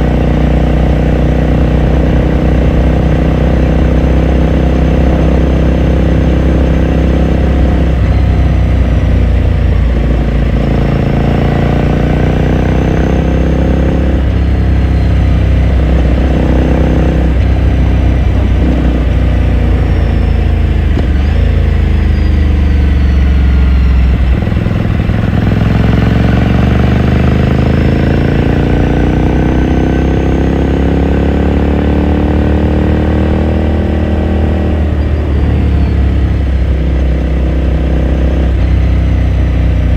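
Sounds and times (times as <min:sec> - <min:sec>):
motorcycle exhaust note: 0:00.0 - 0:39.9.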